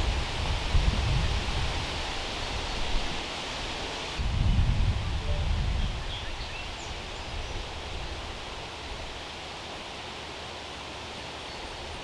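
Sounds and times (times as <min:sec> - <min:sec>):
wind buffeting microphone: 0:00.0 - 0:03.2, 0:04.2 - 0:08.4
steady background hiss: 0:00.0 - 0:12.0.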